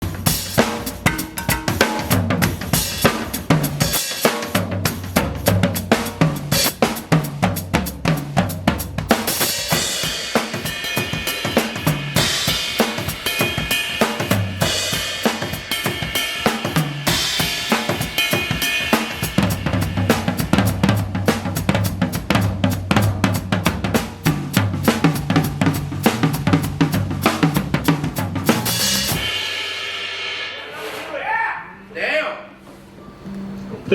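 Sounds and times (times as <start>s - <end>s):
drum kit funk groove: 0.0s - 31.2s
ringing cymbal washes: 0.3s - 4.4s, 9.3s - 20.8s.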